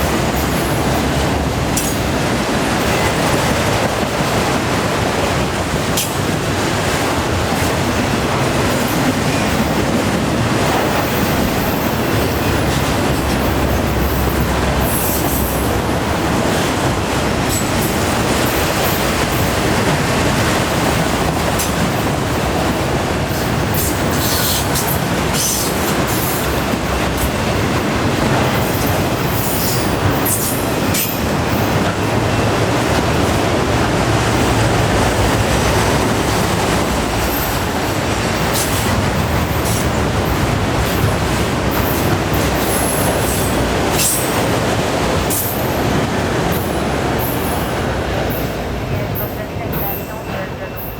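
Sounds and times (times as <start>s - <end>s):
train wheels rumbling on rail: 0.0s - 50.9s.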